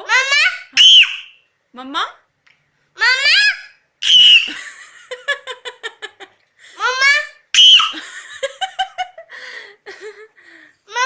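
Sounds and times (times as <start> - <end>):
baby giggling and squealing: 3.0 - 4.6, 6.8 - 8.0.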